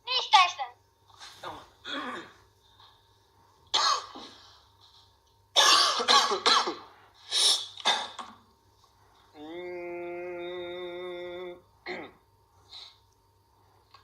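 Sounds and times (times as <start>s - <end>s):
person coughing and clearing throat: 1.8s - 2.4s, 3.7s - 4.4s, 5.5s - 7.0s, 7.8s - 8.4s, 11.8s - 12.3s.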